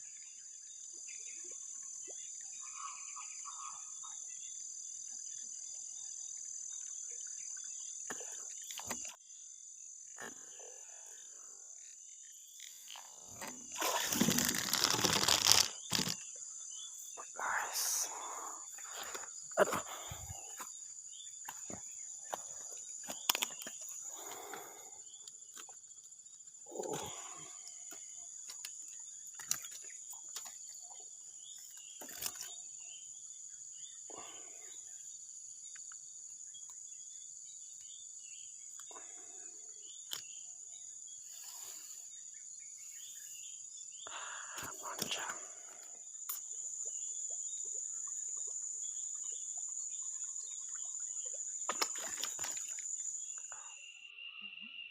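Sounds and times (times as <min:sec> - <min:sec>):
insects chirring: 0:00.0 - 0:54.9
muffled voice sounds: 0:17.2 - 0:19.0.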